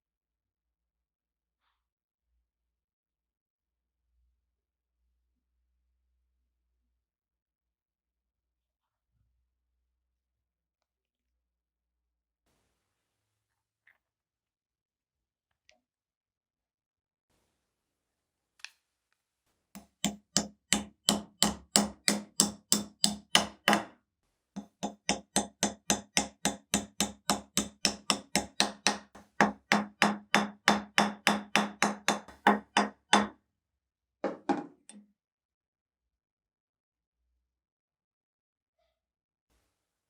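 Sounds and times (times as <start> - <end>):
rapid sharp knocks: 19.8 - 23.9, 24.6 - 33.3.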